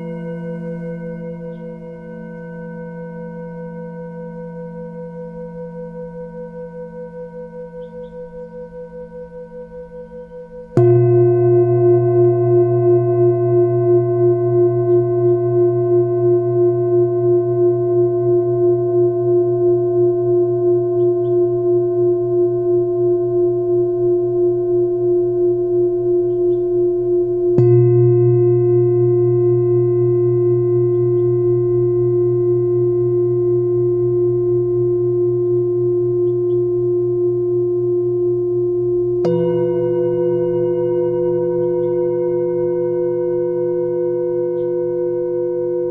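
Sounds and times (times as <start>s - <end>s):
faint bird chirps: 0.0s - 3.2s, 7.6s - 9.1s, 14.8s - 15.6s, 20.8s - 21.7s, 26.1s - 27.0s, 30.8s - 31.5s, 35.1s - 37.3s, 41.0s - 42.8s, 44.3s - 45.1s
singing bowls ringing: 0.0s - 8.0s, 9.6s - 45.9s.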